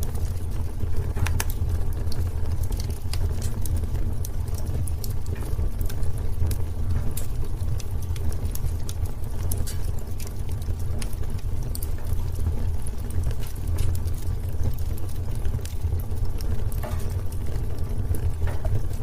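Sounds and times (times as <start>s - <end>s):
fire crackling and popping: 0.0s - 19.0s
fire rumbling: 0.0s - 19.0s.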